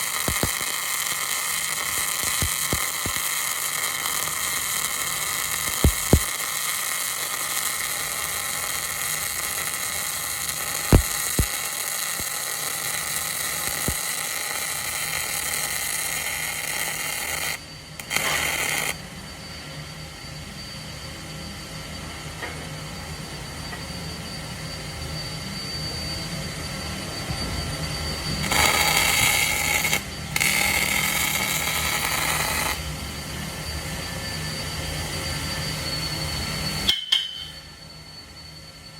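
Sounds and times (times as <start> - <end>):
welding arc hissing: 0.0 - 19.0, 28.4 - 32.9
welding arc pops: 0.0 - 19.0, 28.4 - 32.8.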